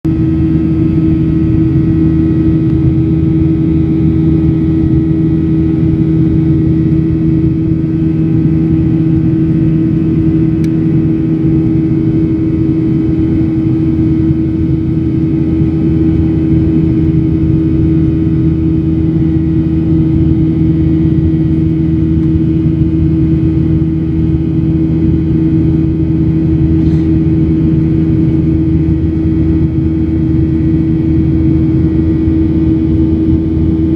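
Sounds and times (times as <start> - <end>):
airliner cabin engine roar: 0.1 - 33.9
droning hum: 0.1 - 33.9.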